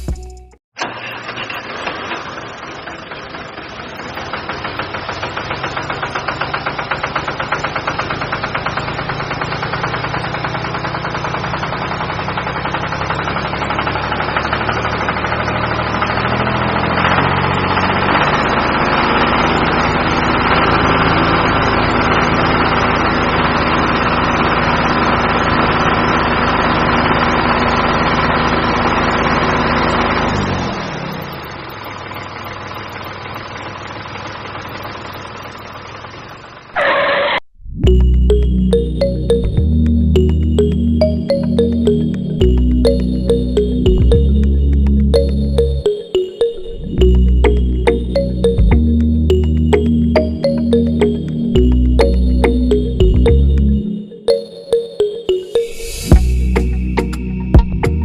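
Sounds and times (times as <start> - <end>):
small diesel engine knocking: 0.8 - 36.7.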